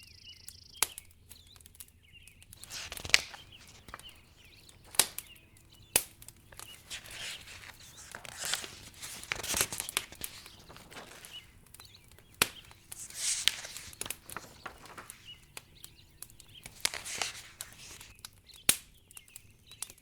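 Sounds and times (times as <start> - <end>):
wood fire crackling: 7.6 - 17.7.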